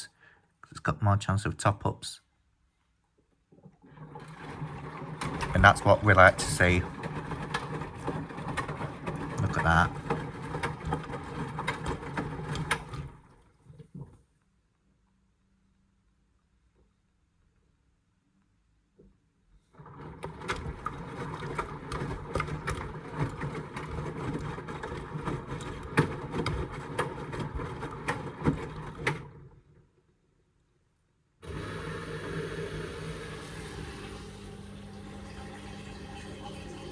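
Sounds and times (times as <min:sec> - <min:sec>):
washing machine motor running: 0:03.8 - 0:13.4, 0:19.8 - 0:29.6, 0:31.4 - 0:36.9.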